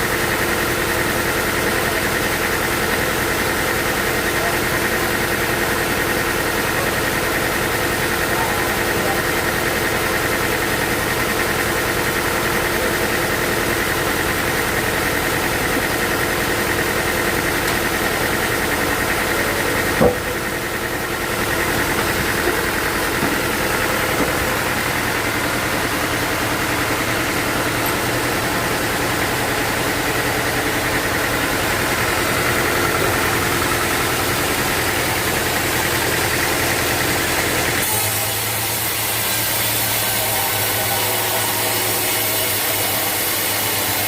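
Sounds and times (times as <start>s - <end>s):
sawmill engine running: 0.0s - 44.0s
sharp knock: 20.0s - 20.5s.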